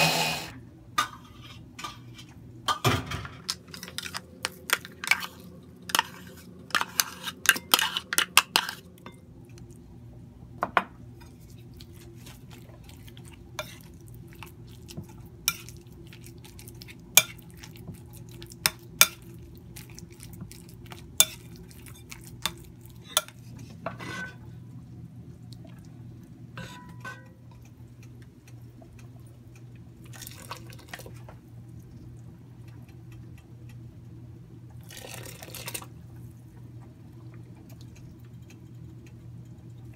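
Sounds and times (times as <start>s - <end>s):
steady low hum: 0.0s - 39.9s
spoon clinking and scraping bowl: 3.5s - 9.2s, 13.6s - 14.0s, 15.0s - 17.7s, 20.9s - 24.4s, 26.6s - 27.4s
liquid being poured: 34.8s - 35.9s.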